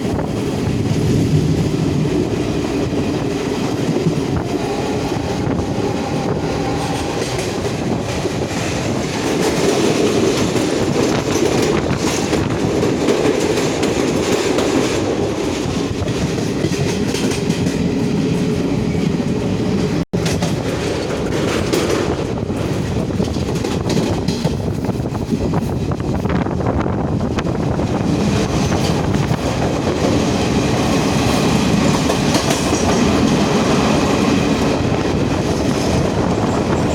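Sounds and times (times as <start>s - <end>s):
train rumbling on track: 0.0s - 36.9s
wheels clacking over rail joints: 2.9s - 18.0s, 20.2s - 24.9s.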